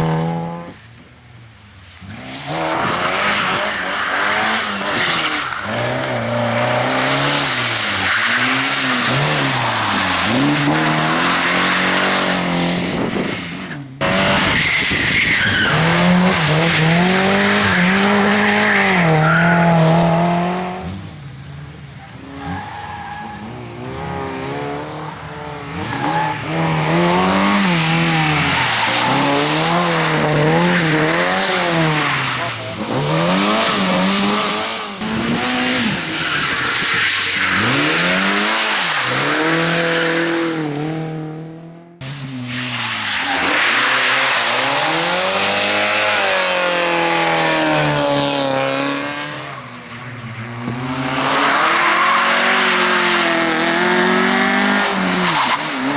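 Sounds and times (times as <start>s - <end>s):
loud tyre noise: 0.0s - 55.9s
race car engine revving: 43.4s - 55.9s.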